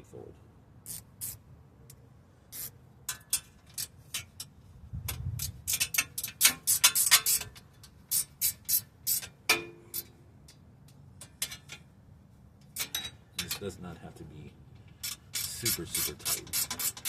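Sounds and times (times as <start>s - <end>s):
metal tools clicking: 12.6s - 13.7s, 14.9s - 17.0s.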